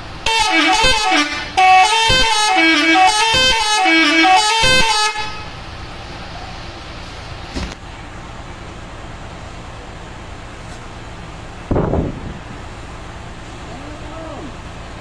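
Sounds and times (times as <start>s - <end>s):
bus musical horn playing: 0.0s - 5.6s
traffic noise: 0.0s - 15.0s.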